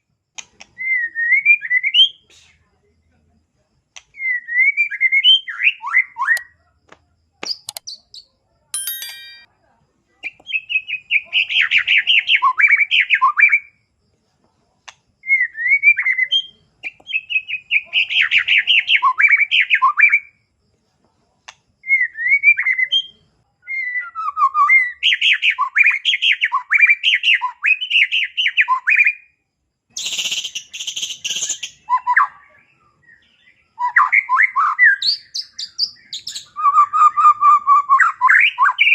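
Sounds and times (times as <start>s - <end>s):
bird singing varied chirping: 15.3s - 20.2s, 30.0s - 38.9s.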